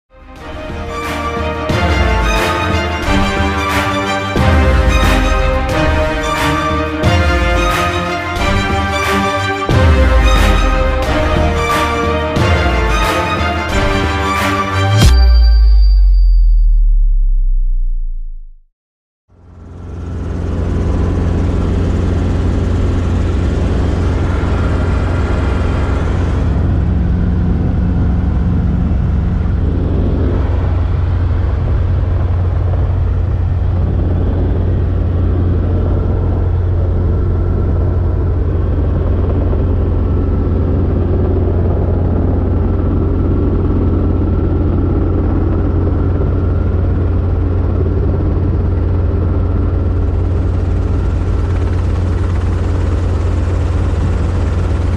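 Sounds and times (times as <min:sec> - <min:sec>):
helicopter engine and rotor drone: 0:00.1 - 0:15.0, 0:19.3 - 0:54.9.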